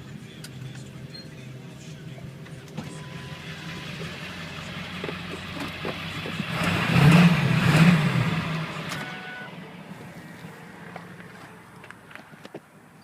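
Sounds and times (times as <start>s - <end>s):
diesel truck engine idling and revving: 0.0s - 13.0s.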